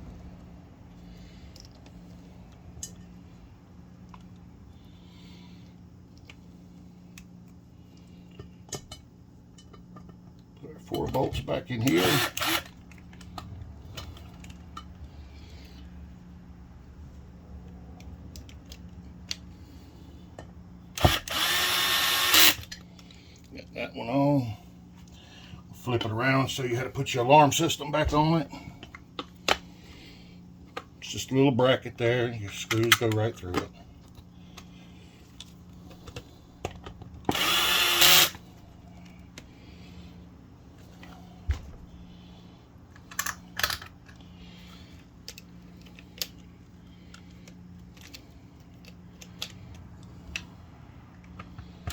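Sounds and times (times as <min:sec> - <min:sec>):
power drill driving a bolt: 0:11.9 - 0:12.7, 0:21.0 - 0:22.7, 0:37.3 - 0:38.4
clicks of parts being handled: 0:32.5 - 0:34.7, 0:42.9 - 0:44.3.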